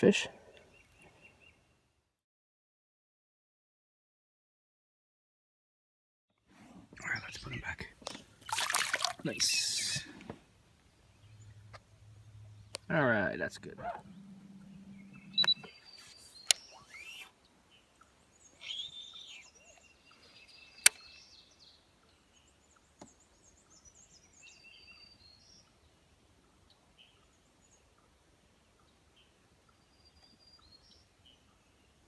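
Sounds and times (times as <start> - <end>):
birds chirping: 0.0 - 1.8, 6.8 - 28.0
sharp clicks: 15.2 - 16.7.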